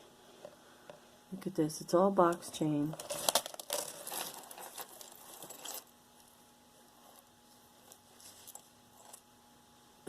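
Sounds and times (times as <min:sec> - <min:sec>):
faint steady hum: 0:00.0 - 0:10.0
metal chain clinking: 0:03.0 - 0:05.9, 0:07.8 - 0:09.2.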